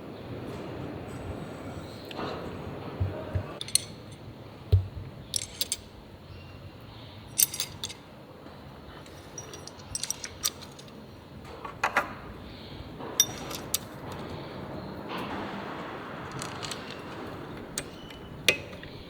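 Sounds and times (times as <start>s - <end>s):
metal tools clinking: 3.0s - 8.2s, 8.8s - 14.6s, 16.2s - 19.0s.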